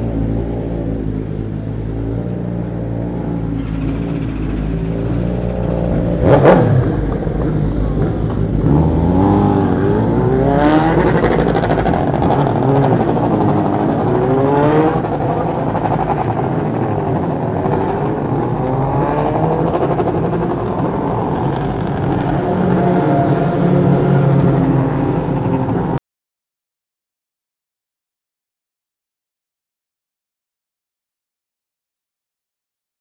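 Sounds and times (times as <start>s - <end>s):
motorcycle engine revving: 0.0s - 26.0s
steady engine drone: 0.0s - 26.0s.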